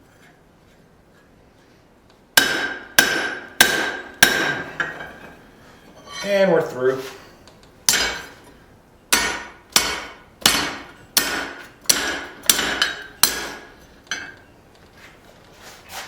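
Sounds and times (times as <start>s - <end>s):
hammer striking steel on anvil: 2.4s - 5.3s, 7.9s - 8.4s, 9.1s - 14.5s.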